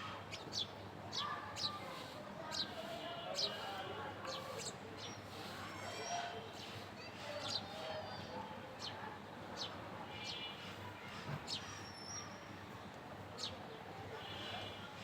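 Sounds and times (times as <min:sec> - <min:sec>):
small birds chirping: 0:00.3 - 0:10.5, 0:13.4 - 0:13.8.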